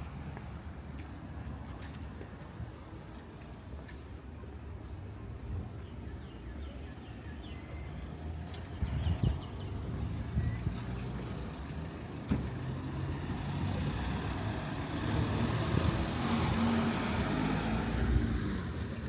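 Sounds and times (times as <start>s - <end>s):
vehicle driving past: 9.9s - 19.0s.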